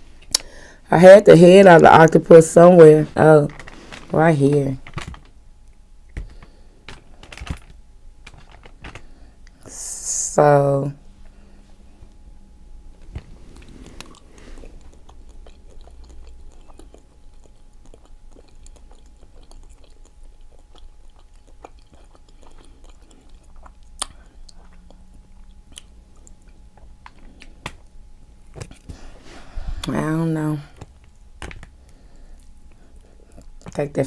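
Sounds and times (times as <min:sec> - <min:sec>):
wet chewing clicks and smacks: 0:13.6 - 0:28.9, 0:30.8 - 0:33.8.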